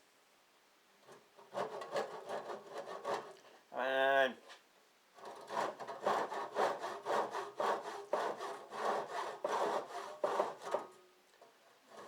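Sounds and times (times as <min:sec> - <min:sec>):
handsaw cutting: 0:01.5 - 0:03.4, 0:05.3 - 0:10.8.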